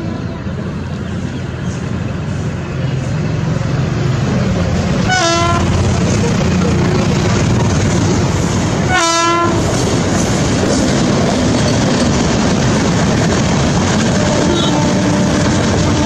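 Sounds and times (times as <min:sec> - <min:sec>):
train running noise: 0:00.0 - 0:16.0
wheels clacking on rail joints: 0:03.7 - 0:16.0
train horn blast: 0:05.1 - 0:05.8, 0:08.9 - 0:09.7, 0:14.1 - 0:16.0.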